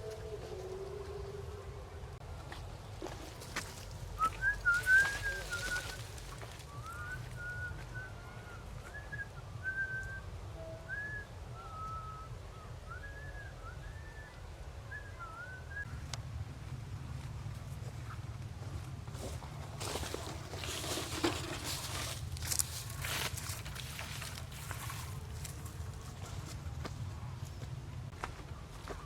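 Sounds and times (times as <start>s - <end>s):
steady low rumble: 0.0s - 28.2s
rustling: 3.1s - 7.5s, 19.2s - 26.5s
short whistled notes: 4.2s - 15.9s.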